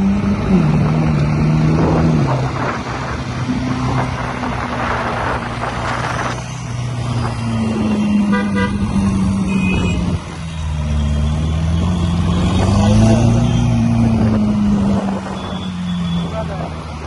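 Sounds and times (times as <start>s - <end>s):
car engines in traffic: 0.0s - 17.0s
car horn toot: 8.3s - 10.2s.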